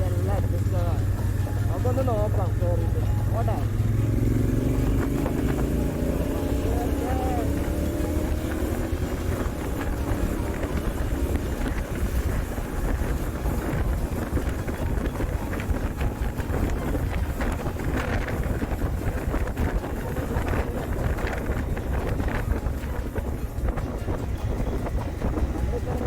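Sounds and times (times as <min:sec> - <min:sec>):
motorcycle engine running: 0:00.0 - 0:26.0
wind buffeting microphone: 0:00.0 - 0:26.0.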